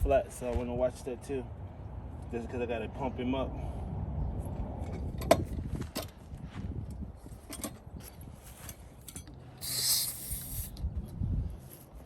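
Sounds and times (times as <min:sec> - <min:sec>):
air hiss: 0:09.6 - 0:10.8.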